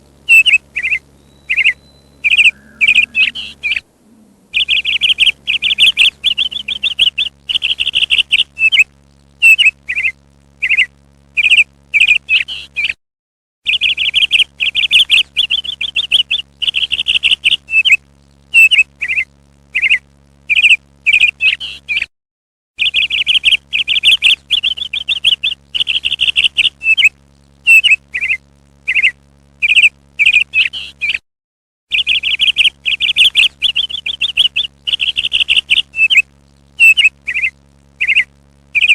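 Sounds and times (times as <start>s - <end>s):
parrot calls: 0.3s - 8.8s, 32.0s - 36.2s, 36.8s - 38.9s.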